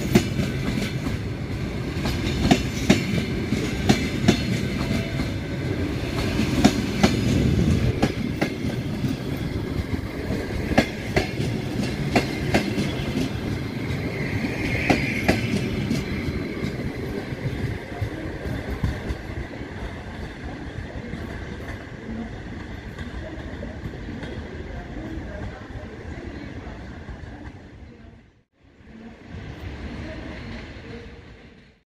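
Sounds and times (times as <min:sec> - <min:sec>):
train wheels clicking over rail joints: 0:00.0 - 0:05.4, 0:06.1 - 0:19.4
train low rumble: 0:00.0 - 0:31.8.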